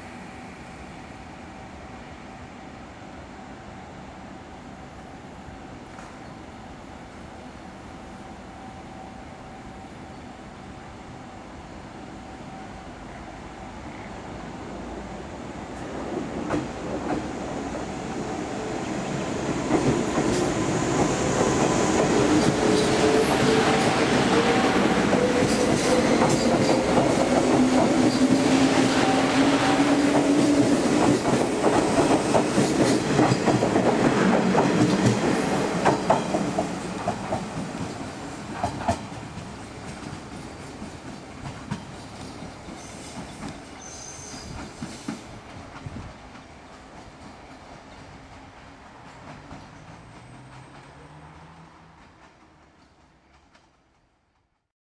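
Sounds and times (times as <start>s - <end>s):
train wheels clattering on rails: 15.8s - 17.9s, 18.8s - 54.0s.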